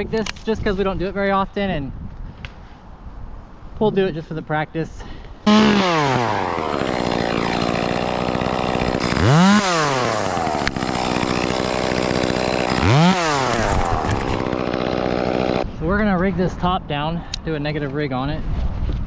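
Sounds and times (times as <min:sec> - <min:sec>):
chainsaw starting and revving: 0:05.5 - 0:15.6.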